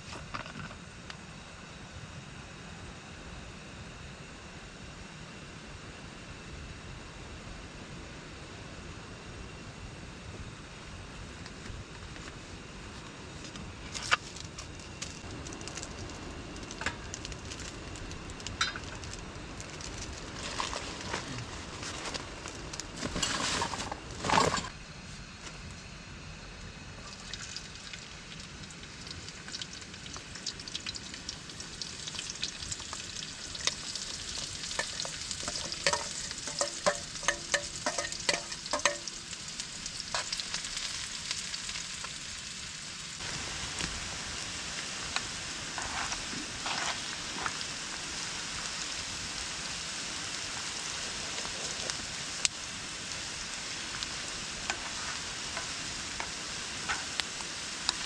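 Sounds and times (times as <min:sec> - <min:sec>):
food sizzling in a pan: 0:27.1 - 0:58.0
utensil scraping a pan: 0:34.4 - 0:39.2.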